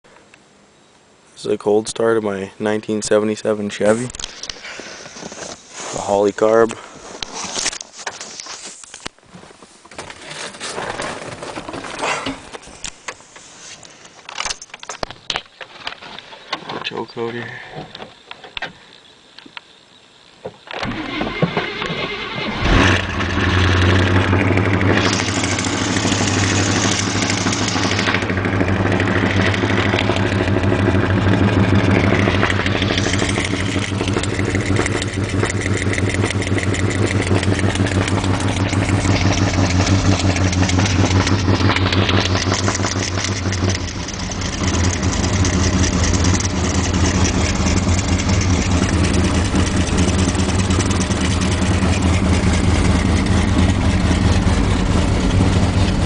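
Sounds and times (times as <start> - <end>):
engine starting and fast idling: 20.8 - 56.0.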